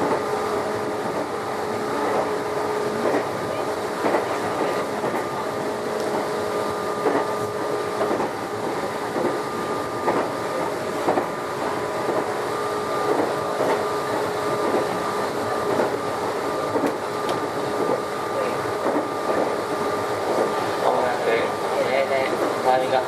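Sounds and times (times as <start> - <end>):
electric train motor whine: 0.0 - 22.1
wheel-on-rail rumble: 0.0 - 23.0
clacks over rail joints: 10.0 - 11.3.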